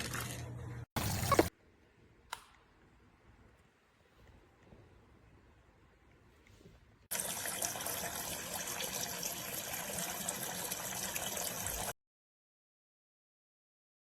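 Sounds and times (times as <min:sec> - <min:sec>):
water running from toy faucet: 0:07.1 - 0:11.9.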